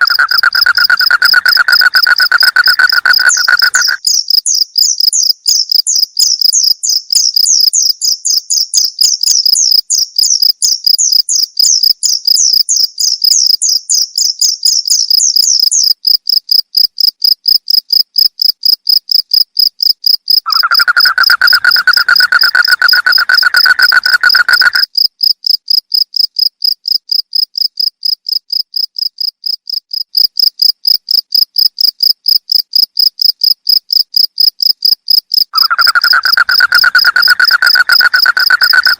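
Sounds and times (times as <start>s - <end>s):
low insect trill: 0.0s - 16.4s, 20.3s - 25.0s, 34.8s - 38.9s
higher chirping insect: 0.0s - 16.6s, 20.3s - 25.1s, 34.8s - 38.9s
crickets chirping: 0.0s - 38.9s.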